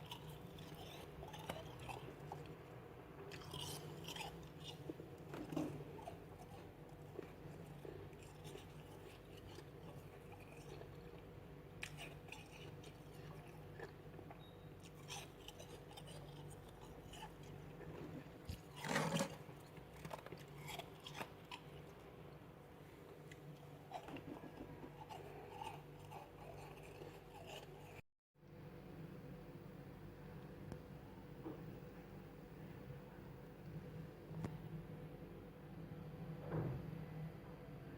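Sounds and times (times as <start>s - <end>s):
person chewing ice: 0.0s - 22.1s, 23.3s - 28.0s
low steady hum: 0.0s - 37.9s.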